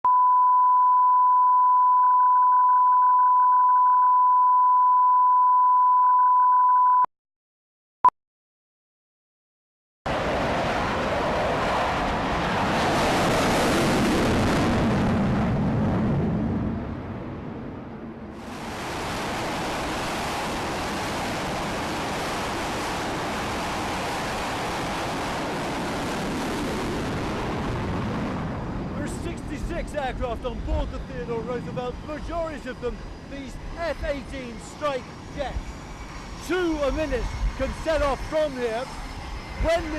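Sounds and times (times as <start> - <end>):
short beep: 0.0 - 7.1
jet engine roaring: 10.1 - 39.9.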